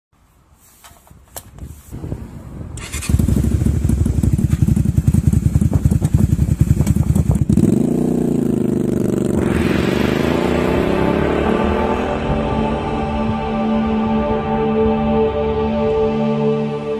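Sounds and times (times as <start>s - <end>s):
motorcycle engine starting and running: 2.7s - 13.0s.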